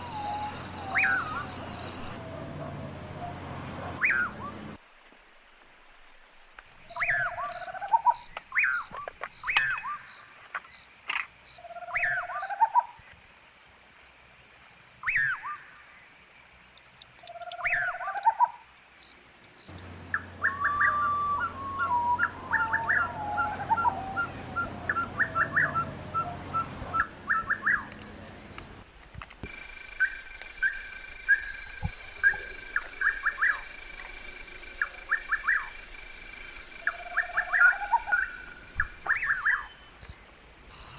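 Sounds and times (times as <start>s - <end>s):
bird call sweeping downward: 0.0s - 2.2s, 4.0s - 4.8s, 20.0s - 28.2s, 29.4s - 40.0s
bird chirps: 0.0s - 2.3s, 4.0s - 4.8s, 19.7s - 28.7s, 29.4s - 40.9s
bird trill falling in pitch: 29.4s - 39.9s.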